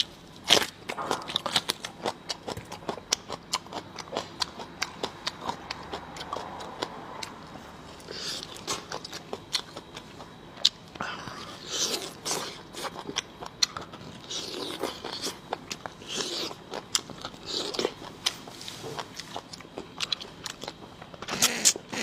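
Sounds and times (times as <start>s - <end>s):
biting and chewing food: 0.0s - 22.0s.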